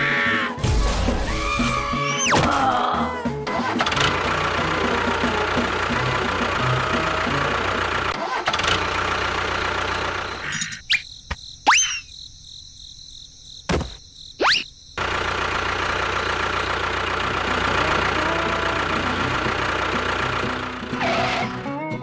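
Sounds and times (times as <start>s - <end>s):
steady motor running: 3.1s - 10.5s, 15.0s - 21.6s
thump: 13.7s - 14.0s.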